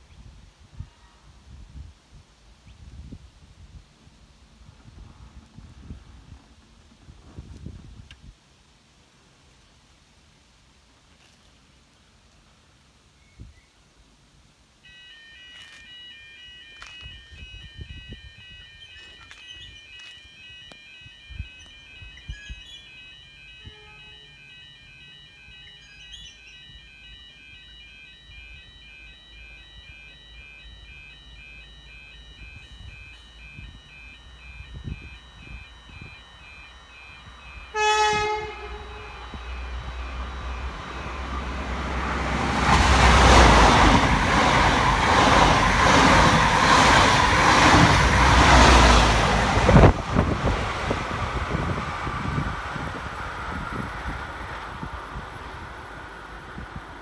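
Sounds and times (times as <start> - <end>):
train horn blast: 0.8 - 1.4, 23.6 - 24.4, 37.7 - 42.4
level crossing bells ringing: 14.8 - 50.0
train passing at speed: 28.4 - 57.0.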